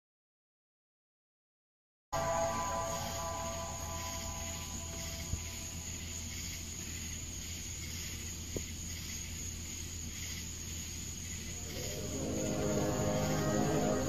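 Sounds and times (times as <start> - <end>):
loud droning sound: 2.2 - 6.1, 11.6 - 14.0
low hum: 2.2 - 7.0, 11.4 - 14.0
insects chirring: 2.2 - 14.0.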